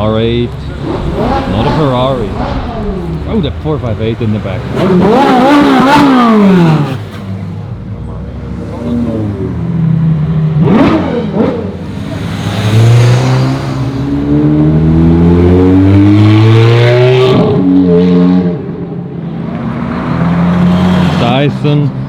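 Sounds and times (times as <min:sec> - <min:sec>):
sports car engine revving: 0:00.2 - 0:07.4, 0:08.8 - 0:18.6.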